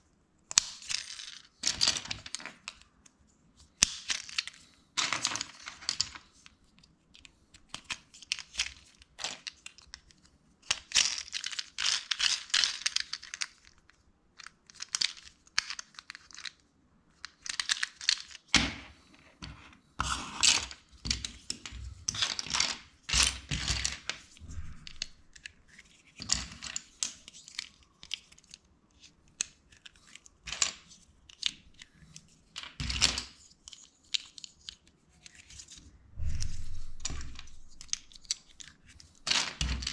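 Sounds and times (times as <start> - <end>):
plastic bricks clicking and rattling: 0.5 - 2.8, 3.8 - 6.5, 7.1 - 18.5, 20.4 - 32.0, 36.9 - 39.9.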